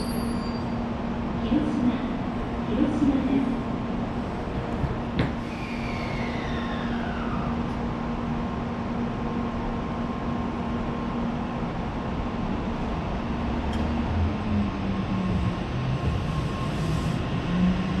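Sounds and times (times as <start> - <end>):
train hum and rumble: 0.0 - 18.0.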